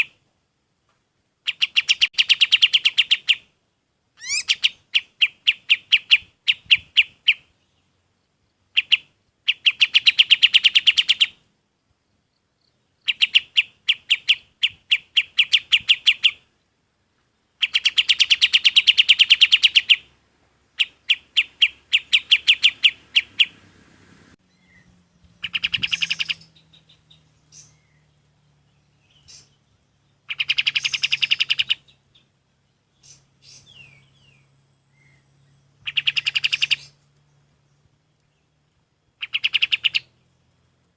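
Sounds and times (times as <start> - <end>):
songbird trilling: 1.4 - 3.5, 4.2 - 8.0, 8.6 - 11.4, 12.4 - 16.6, 17.5 - 20.1, 20.7 - 23.8, 24.4 - 40.5
faint scattered chirps: 24.4 - 40.9.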